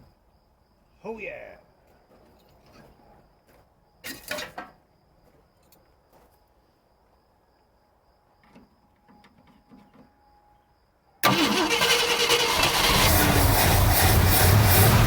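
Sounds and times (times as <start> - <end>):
car engine running: 12.4 - 15.0.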